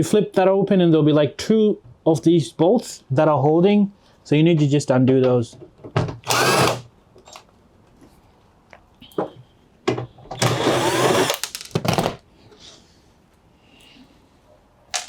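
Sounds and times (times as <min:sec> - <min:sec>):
cordless drill running: 0:06.3 - 0:06.9, 0:10.4 - 0:11.5.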